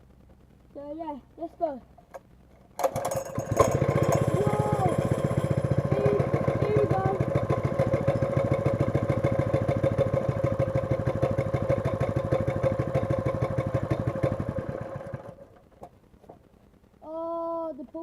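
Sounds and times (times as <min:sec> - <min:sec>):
plate compactor engine chugging: 0:02.8 - 0:15.5.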